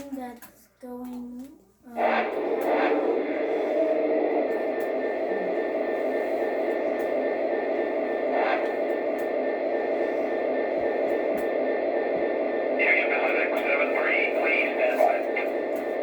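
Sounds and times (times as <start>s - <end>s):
faint high pulsing tone: 1.9s - 16.0s
model train running on track: 1.9s - 16.0s.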